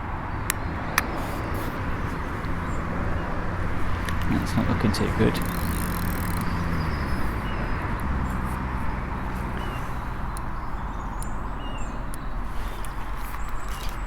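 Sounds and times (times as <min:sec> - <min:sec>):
high bird chirps: 0:05.4 - 0:14.0
faint clicks: 0:09.3 - 0:14.0.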